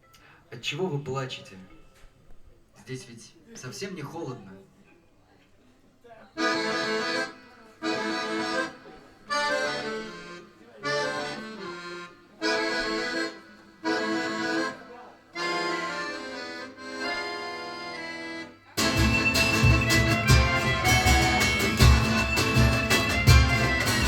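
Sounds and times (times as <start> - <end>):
sustained instrumental chords: 15.4 - 24.0.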